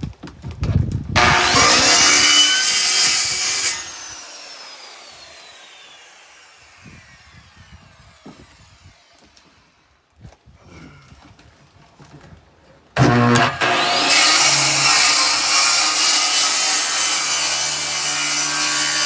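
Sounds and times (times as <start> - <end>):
power tool spinning blade: 1.2 - 9.8, 13.0 - 19.0.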